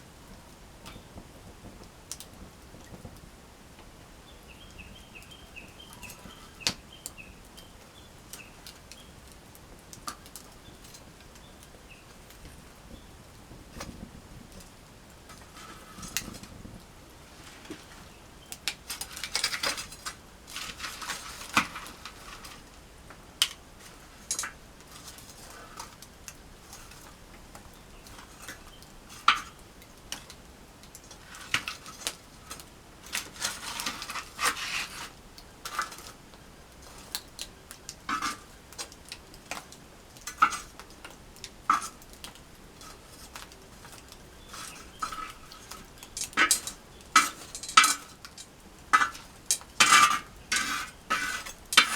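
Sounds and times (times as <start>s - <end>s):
utensil scraping a pan: 15.3s - 16.6s, 17.2s - 22.7s, 31.1s - 36.2s, 38.1s - 39.6s, 40.2s - 40.9s, 41.7s - 51.9s
utensil clinking on metal pan: 44.5s - 51.9s.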